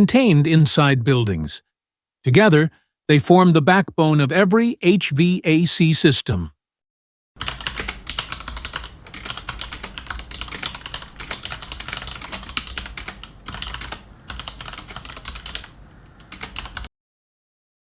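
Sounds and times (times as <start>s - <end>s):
fast typing on keyboard: 7.4s - 16.9s.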